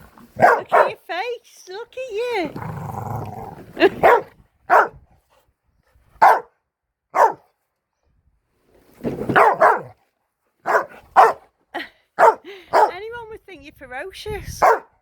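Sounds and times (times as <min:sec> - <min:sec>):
dog barking: 0:00.4 - 0:01.0, 0:04.0 - 0:05.0, 0:06.2 - 0:07.5, 0:09.3 - 0:10.0, 0:10.6 - 0:11.5, 0:12.2 - 0:13.0, 0:14.6 - 0:14.9.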